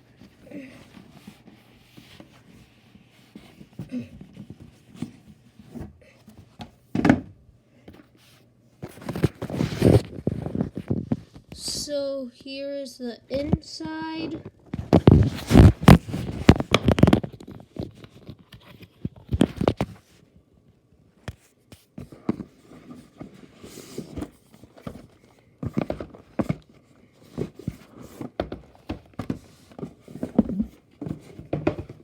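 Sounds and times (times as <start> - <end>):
cardboard box knocks and clatter: 3.5 - 7.4, 22.0 - 32.0.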